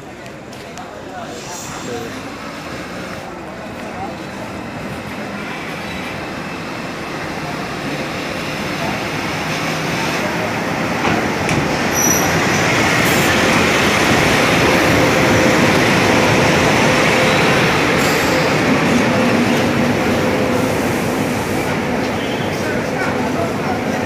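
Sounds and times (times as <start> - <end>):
train wheels on rails: 0.0 - 24.0
diesel locomotive passing: 0.8 - 24.0
high squeal: 11.9 - 12.4.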